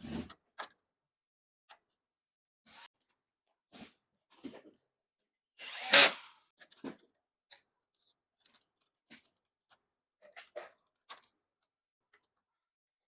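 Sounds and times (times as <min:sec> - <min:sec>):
clicks and knocks of parts: 0:08.4 - 0:12.4.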